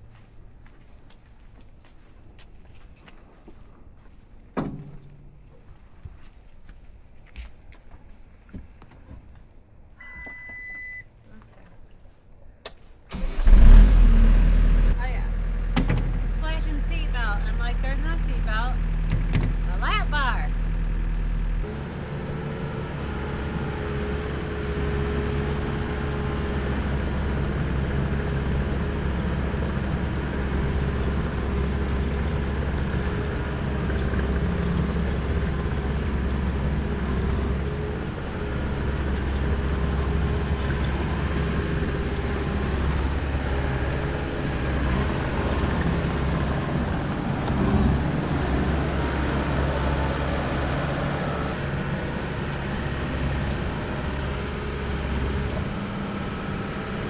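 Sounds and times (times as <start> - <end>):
skid steer engine running: 13.1 - 57.0.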